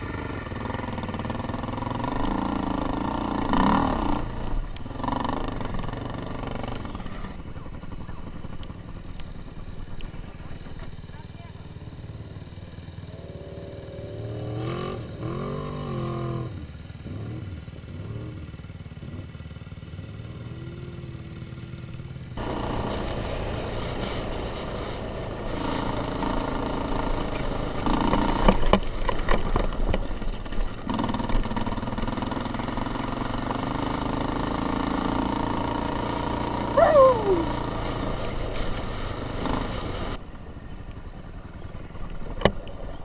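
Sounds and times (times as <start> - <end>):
off-road engines revving: 0.0 - 40.2.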